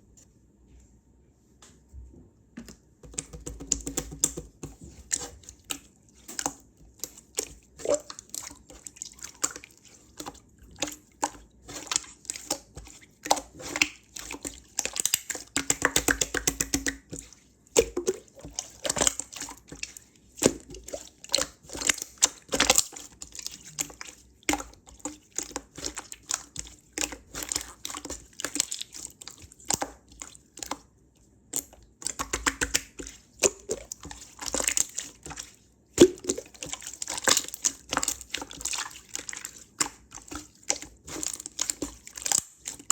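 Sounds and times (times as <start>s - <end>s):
slime squished by hand: 31.5s - 42.9s.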